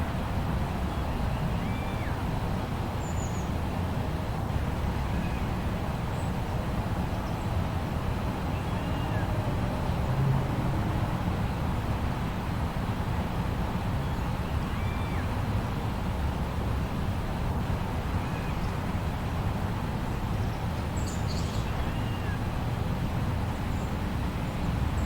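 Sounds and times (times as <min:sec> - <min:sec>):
low rumble of storm wind: 0:00.0 - 0:25.0.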